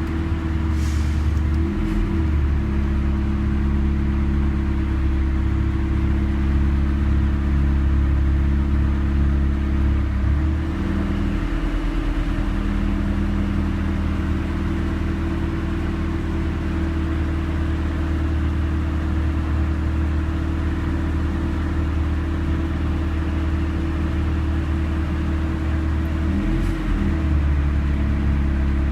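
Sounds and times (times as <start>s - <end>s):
car engine running with low hum: 0.0s - 28.9s.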